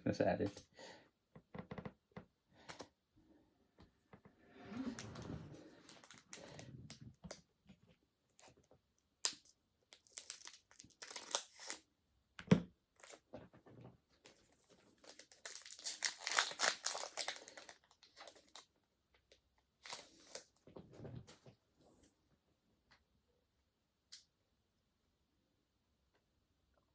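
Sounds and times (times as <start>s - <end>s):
foil wrapper crinkling and tearing: 5.9s - 6.6s, 9.2s - 11.8s, 14.6s - 18.7s, 19.8s - 20.5s.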